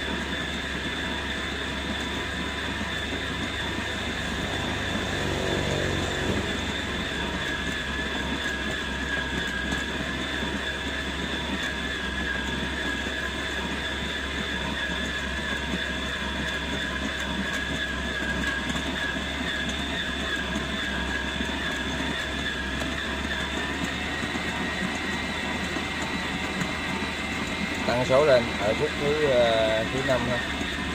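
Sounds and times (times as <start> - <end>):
stand mixer motor whining: 0.0 - 30.9.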